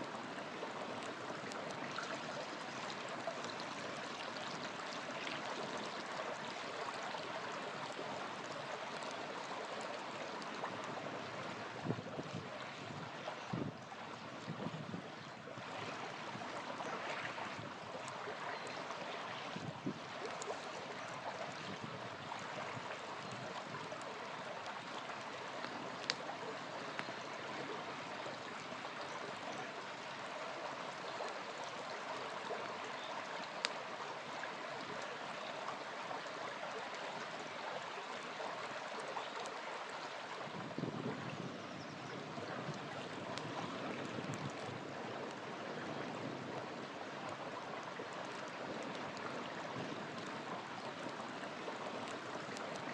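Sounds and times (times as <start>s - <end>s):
small river flowing: 0.0s - 52.9s
campfire popping: 0.4s - 12.0s, 16.0s - 27.6s, 42.9s - 45.5s, 46.1s - 52.9s.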